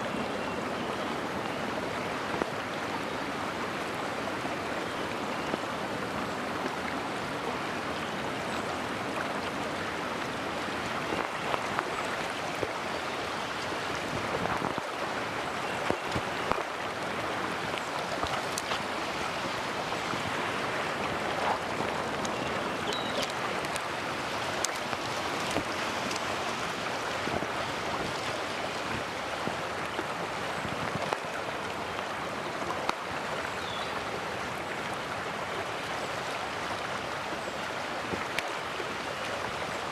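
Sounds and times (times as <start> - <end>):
stream rushing water: 0.0 - 39.9.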